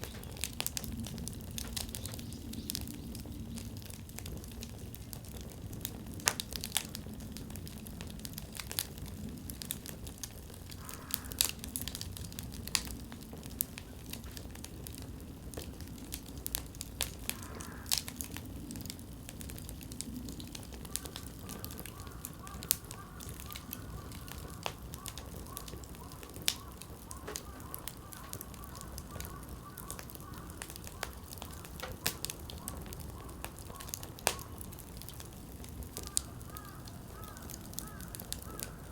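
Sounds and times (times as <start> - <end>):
campfire crackling and popping: 0.0 - 38.9
low rumble of flames: 0.0 - 38.9.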